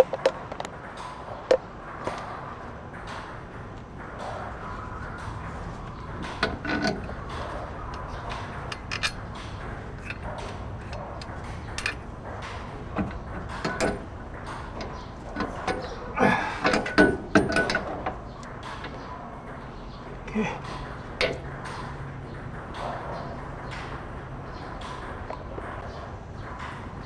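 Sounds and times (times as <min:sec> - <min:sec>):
ringing metallic knocks: 0:00.0 - 0:27.0
hand tools clinking on metal: 0:01.5 - 0:19.1.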